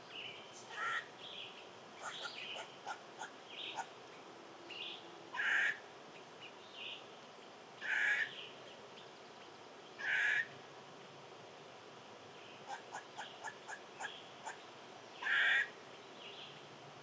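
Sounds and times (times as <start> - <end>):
small birds chirping: 0.0 - 11.2, 12.3 - 17.0
bird giving harsh calls: 0.7 - 1.1, 5.4 - 5.8, 7.8 - 8.3, 10.0 - 10.5, 15.2 - 15.8.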